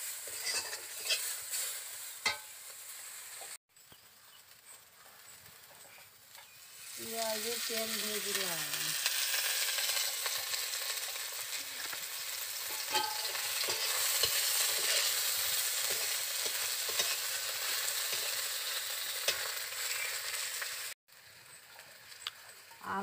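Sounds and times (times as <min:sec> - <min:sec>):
metal spatula scraping a pan: 0:00.0 - 0:03.6, 0:09.0 - 0:20.7
oil sizzling in a wok: 0:00.0 - 0:23.0.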